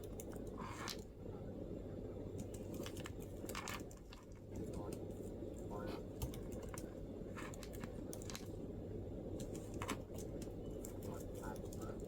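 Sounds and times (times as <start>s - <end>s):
laptop keyboard typing: 0.0s - 0.7s, 2.3s - 5.3s, 6.1s - 8.6s, 9.3s - 12.0s
low background hum: 0.0s - 12.0s.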